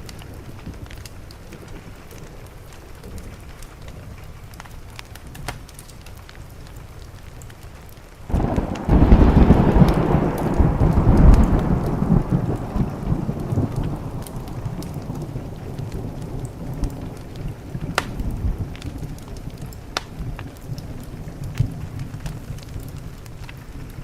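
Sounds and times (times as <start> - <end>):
steady rain: 0.0 - 24.0
wood fire crackling: 0.0 - 24.0
thunder rumbling: 8.3 - 24.0.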